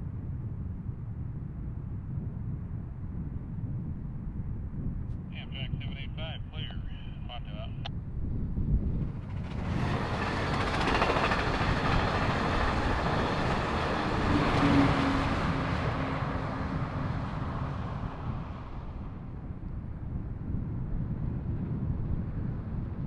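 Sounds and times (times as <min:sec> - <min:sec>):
train passing at speed: 0:08.8 - 0:19.4.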